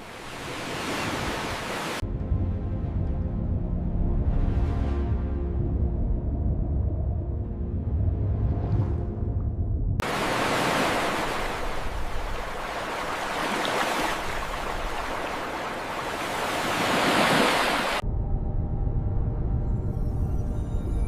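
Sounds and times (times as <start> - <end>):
ocean surf rushing: 0.0 - 2.0, 10.0 - 18.0.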